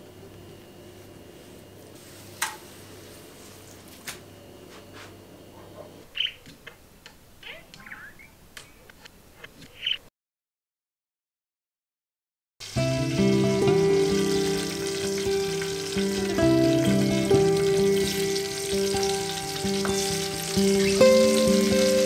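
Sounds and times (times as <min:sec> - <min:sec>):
small bird chirping: 0:06.1 - 0:06.8, 0:07.4 - 0:10.1, 0:20.5 - 0:21.8.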